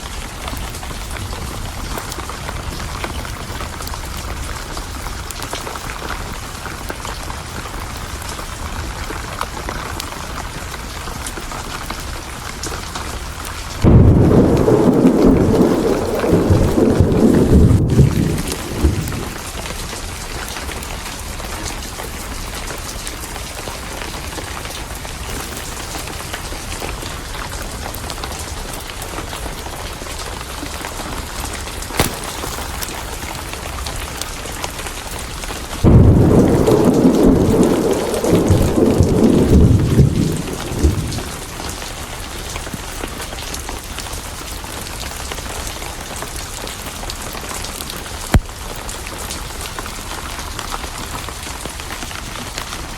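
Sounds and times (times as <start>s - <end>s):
steady rain: 0.0s - 52.9s
thunder rumbling: 13.7s - 20.1s, 35.2s - 42.6s.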